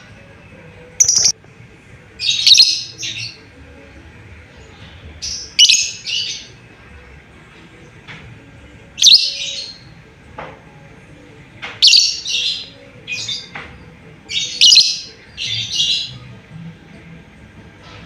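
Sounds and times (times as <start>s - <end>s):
lovebird high-pitched calls: 1.0s - 1.4s, 2.3s - 3.2s, 5.5s - 6.4s, 9.0s - 9.8s, 11.8s - 13.5s, 14.3s - 16.2s.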